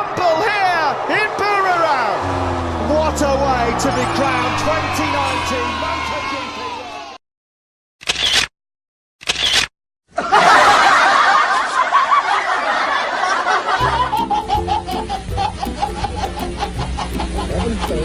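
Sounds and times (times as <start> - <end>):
canned laughter: 10.2 - 18.0
background music with beat and bass: 13.8 - 18.0.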